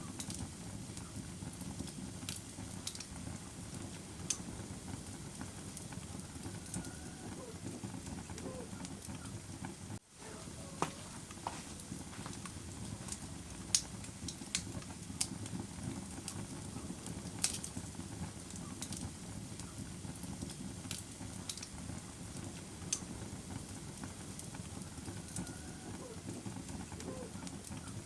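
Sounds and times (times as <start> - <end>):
fire crackling and popping: 0.0 - 28.0
low rush of flames: 0.0 - 28.0.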